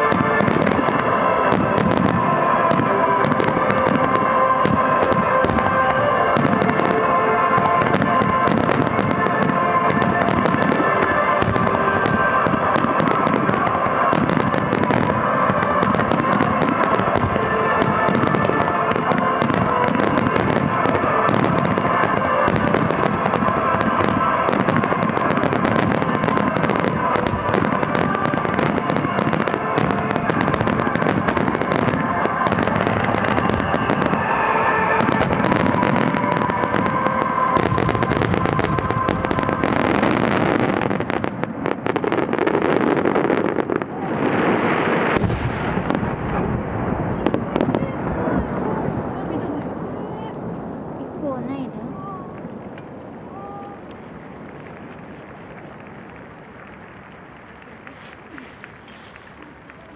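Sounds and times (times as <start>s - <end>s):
music playing: 0.0s - 41.2s
fireworks bursting: 0.0s - 59.9s.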